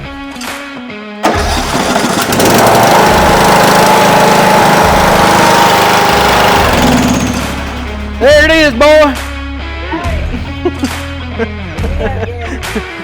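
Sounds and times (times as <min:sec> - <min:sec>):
guitar music: 0:00.0 - 0:13.0
riding mower engine running: 0:01.2 - 0:09.6
high whine: 0:04.6 - 0:09.8.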